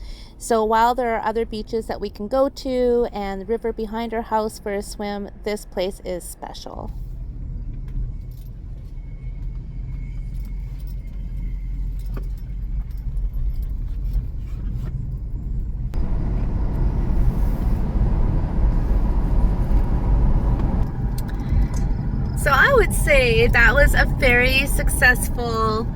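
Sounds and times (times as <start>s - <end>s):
tyre and road noise: 6.8s - 25.9s
car engine: 6.9s - 25.9s.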